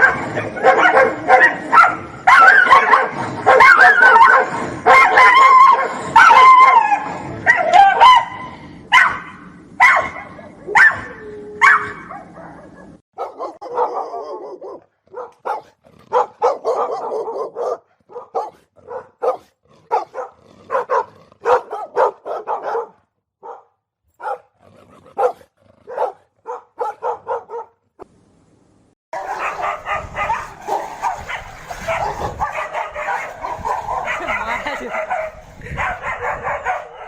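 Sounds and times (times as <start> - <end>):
dogs fighting barking and yelping: 0.0 - 23.6, 24.2 - 27.7, 29.2 - 37.0.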